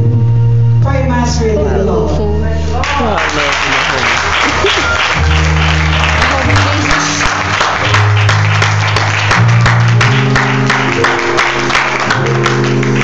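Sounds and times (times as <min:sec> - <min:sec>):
church band keyboard and bass: 0:00.0 - 0:13.0
congregation clapping: 0:02.8 - 0:13.0.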